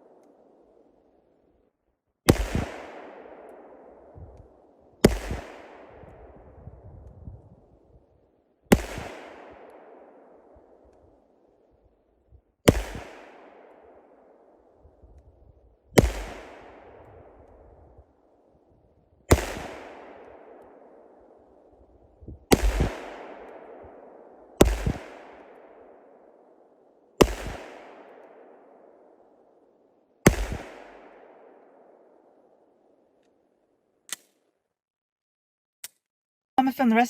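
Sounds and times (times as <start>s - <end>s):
pistol shots echoing: 2.3s - 6.4s, 8.7s - 11.5s, 12.7s - 14.9s, 16.0s - 18.2s, 19.3s - 21.8s, 22.5s - 32.9s.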